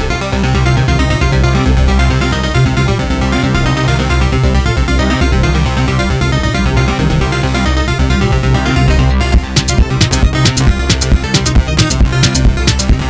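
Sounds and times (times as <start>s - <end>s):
steady low bass: 0.0s - 13.0s
synthesizer sequenced notes: 0.0s - 13.0s.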